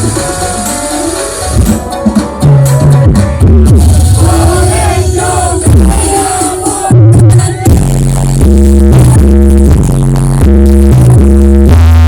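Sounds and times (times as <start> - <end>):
deep booming bass: 0.0 - 12.0
person singing a melody: 4.2 - 7.8.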